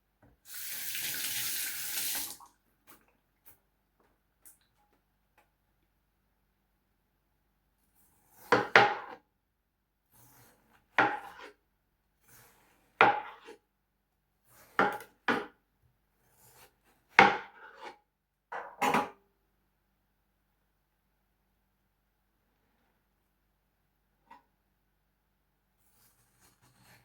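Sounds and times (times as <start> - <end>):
knife chopping onto cutting board: 8.4 - 9.2.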